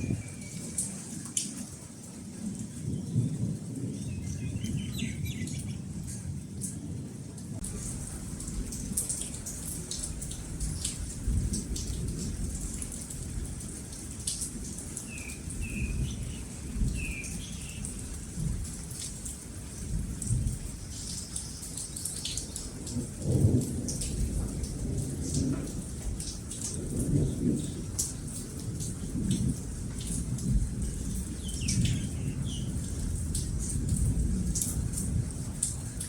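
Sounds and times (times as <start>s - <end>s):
steady rain falling: 0.0s - 36.0s
thunder rumbling: 15.4s - 19.0s, 22.3s - 36.0s.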